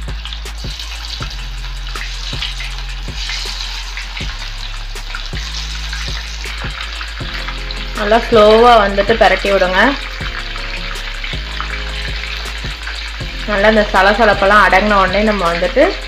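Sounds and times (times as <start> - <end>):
background music with beat: 0.0 - 16.0
mushrooms sizzling in hot oil: 0.0 - 16.0.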